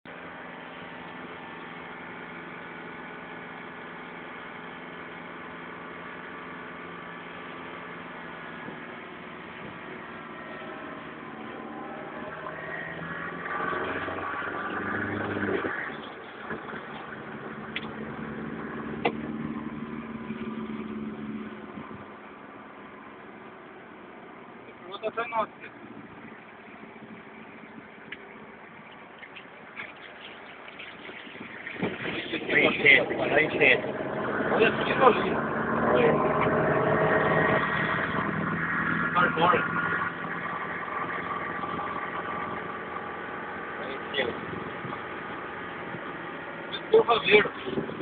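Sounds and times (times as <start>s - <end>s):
motor vehicle engines running: 0.1s - 48.0s
vehicle passing by: 17.5s - 21.9s, 31.6s - 48.0s.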